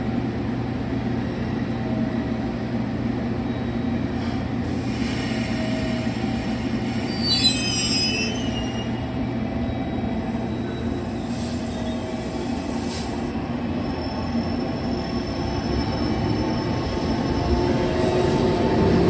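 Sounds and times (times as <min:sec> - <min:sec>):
electric train rumble: 0:00.0 - 0:19.0
high metallic squeal: 0:06.9 - 0:09.0.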